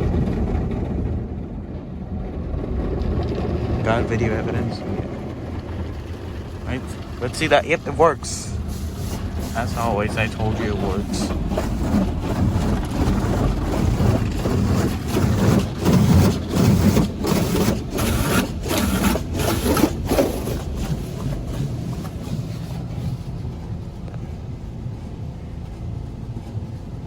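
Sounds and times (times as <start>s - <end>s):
low rumble: 0.0s - 17.8s, 20.5s - 27.0s
car wash spray hissing: 6.7s - 12.5s.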